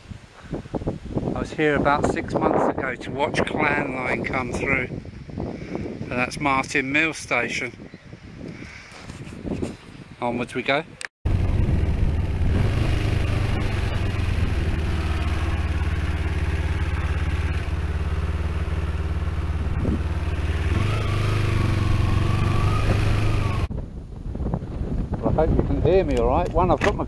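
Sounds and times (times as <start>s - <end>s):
rushing wind noise: 0.0s - 10.6s, 11.3s - 27.0s
motorcycle engine running: 11.3s - 23.7s.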